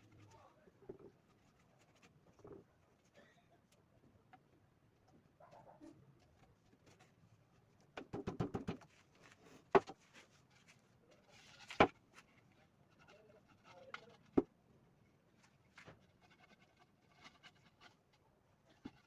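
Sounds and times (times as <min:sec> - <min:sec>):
wooden boards knocking and clicking: 0:08.0 - 0:08.8, 0:09.7 - 0:10.0.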